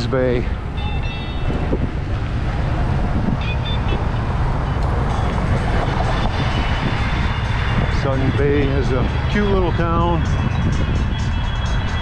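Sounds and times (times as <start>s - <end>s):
road traffic: 0.0s - 12.0s
wind buffeting microphone: 0.0s - 12.0s.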